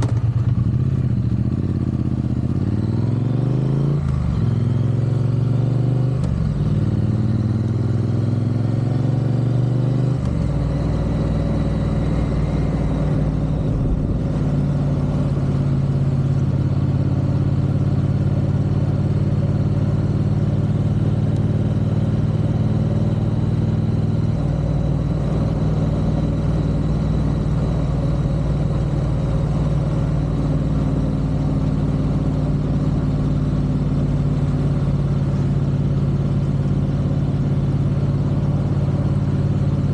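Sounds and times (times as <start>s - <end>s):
motorcycle engine shifting up: 9.3s - 31.1s.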